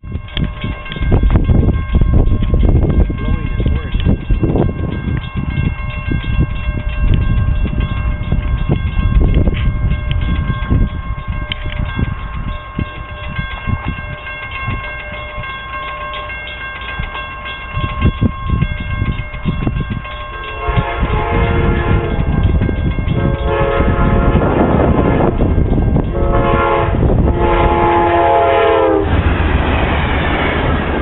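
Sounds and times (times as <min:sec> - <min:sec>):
train approaching: 0:00.0 - 0:31.0
wind buffeting microphone: 0:00.0 - 0:31.0
train horn: 0:20.4 - 0:22.4, 0:23.2 - 0:24.7, 0:26.1 - 0:29.2.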